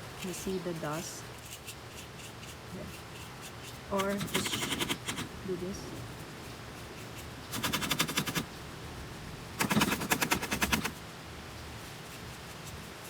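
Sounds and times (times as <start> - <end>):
rapid clicking of vacuum filter: 1.5 - 5.4, 7.1 - 8.5, 9.6 - 11.0.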